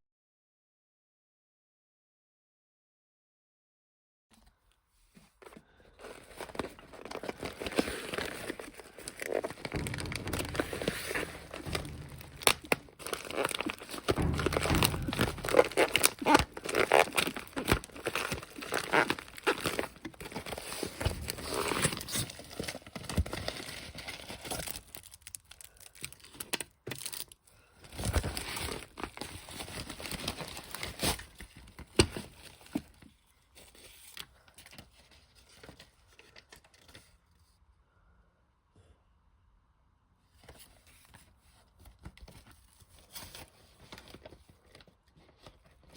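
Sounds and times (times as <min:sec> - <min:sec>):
packaging crinkling and tearing: 0:06.0 - 0:33.0.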